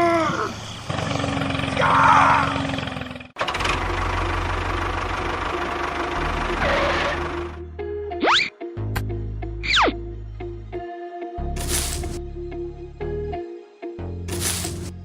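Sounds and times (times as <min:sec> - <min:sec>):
small engine chugging: 0:00.6 - 0:07.6.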